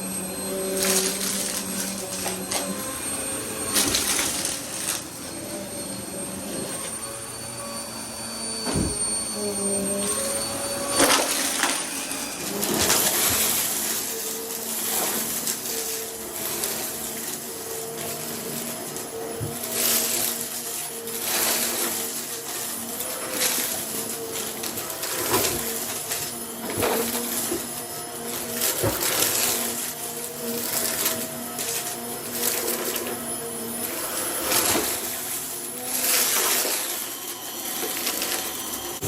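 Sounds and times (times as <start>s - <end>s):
vacuum cleaner running: 0.0s - 39.0s.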